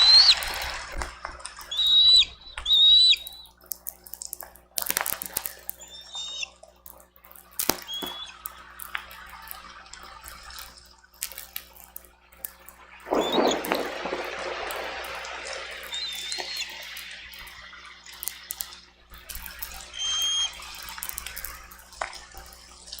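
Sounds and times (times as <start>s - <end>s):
raindrops tapping: 0.0s - 23.0s
wind gusts: 13.0s - 17.8s.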